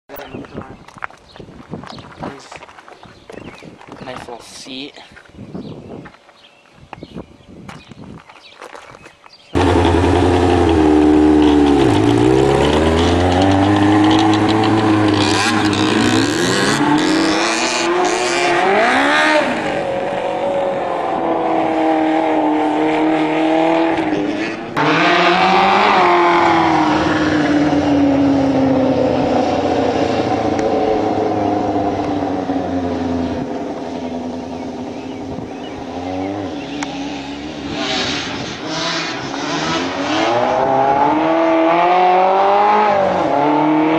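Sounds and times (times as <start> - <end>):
go-kart engine revving: 9.6 - 43.9.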